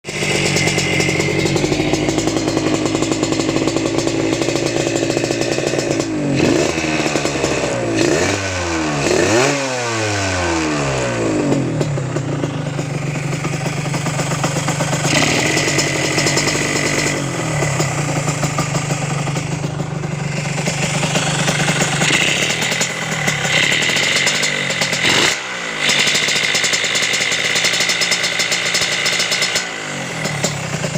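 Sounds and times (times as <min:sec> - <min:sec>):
motorcycle engine idling and revving: 0:00.0 - 0:30.9.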